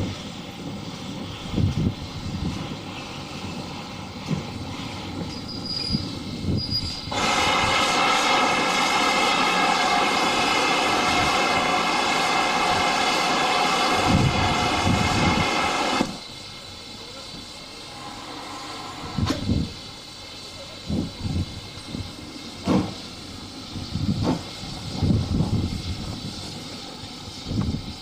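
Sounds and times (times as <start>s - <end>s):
locomotive whistle blast: 17.9s - 19.8s.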